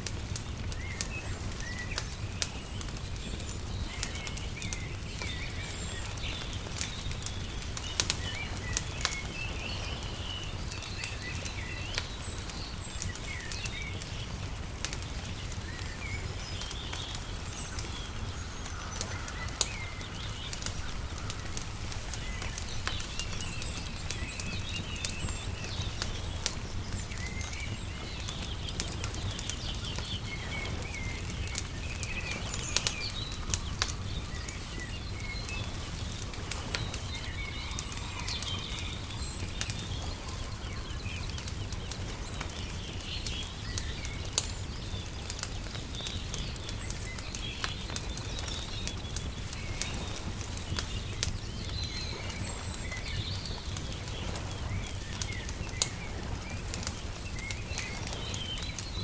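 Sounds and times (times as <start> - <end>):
small birds chirping: 0.0 - 59.0
wood fire crackling and popping: 0.0 - 59.0.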